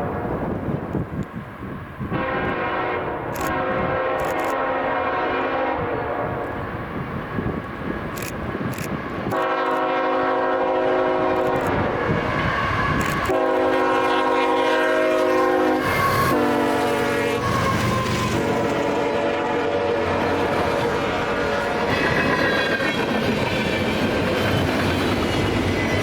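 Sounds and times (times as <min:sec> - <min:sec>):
train rumble: 0:00.0 - 0:26.0
locomotive air horn blasts: 0:02.1 - 0:06.5, 0:09.3 - 0:22.2.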